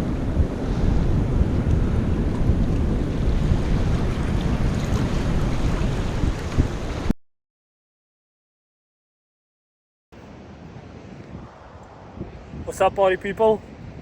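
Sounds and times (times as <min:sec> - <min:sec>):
sea surf: 0:00.0 - 0:07.1, 0:10.2 - 0:14.0
wind buffeting microphone: 0:00.0 - 0:07.1, 0:10.2 - 0:14.0.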